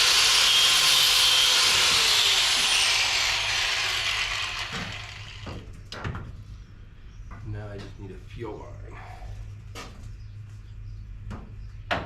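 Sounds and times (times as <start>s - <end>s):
power tool grinding: 0.0s - 5.6s.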